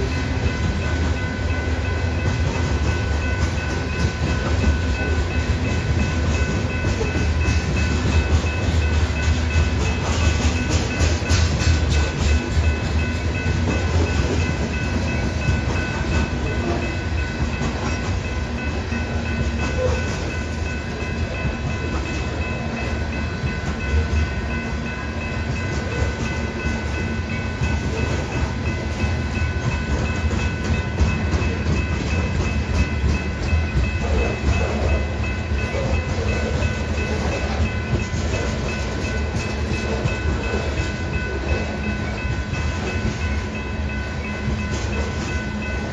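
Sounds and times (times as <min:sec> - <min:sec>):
wheels clicking over rail joints: 0:00.0 - 0:24.6
freight train wheels rumbling on rail: 0:00.0 - 0:45.9.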